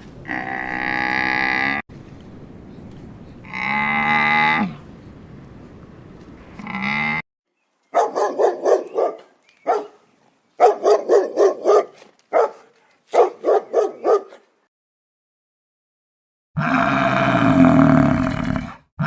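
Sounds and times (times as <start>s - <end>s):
cow mooing: 0.3s - 1.8s, 3.5s - 4.8s, 6.6s - 7.2s, 16.6s - 18.8s
dog barking: 7.9s - 10.0s, 10.6s - 14.5s.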